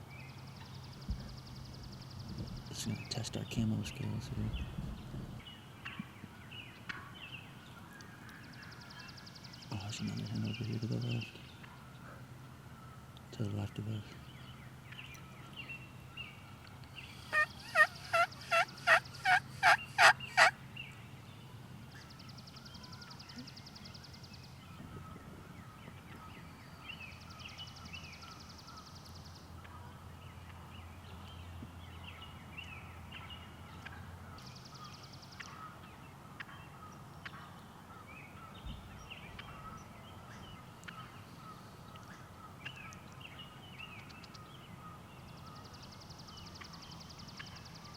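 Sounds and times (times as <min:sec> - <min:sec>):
small birds chirping: 0:00.2 - 0:47.9
turkey hen yelping: 0:17.2 - 0:20.5.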